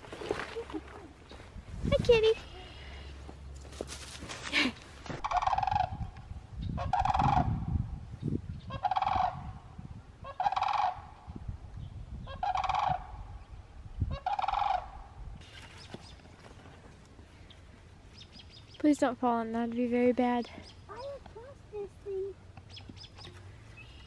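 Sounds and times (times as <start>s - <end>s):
large birds calling harshly: 8.6s - 9.4s.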